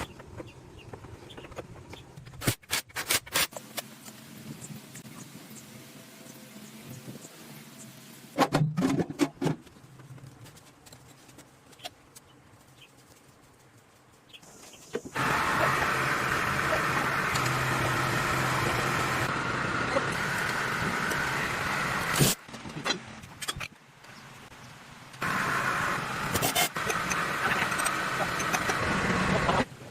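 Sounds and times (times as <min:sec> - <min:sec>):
excavator engine starting and running: 0:15.1 - 0:22.4, 0:25.2 - 0:29.9.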